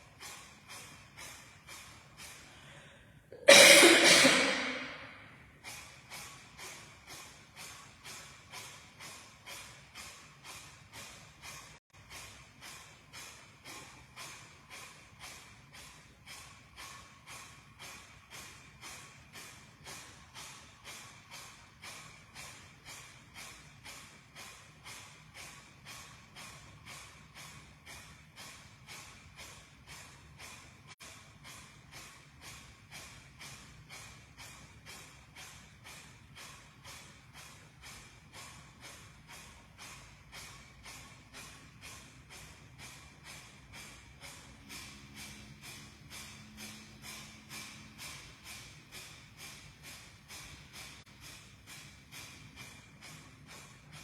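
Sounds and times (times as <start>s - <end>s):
forceful nasal exhalations: 2.4s - 5.4s.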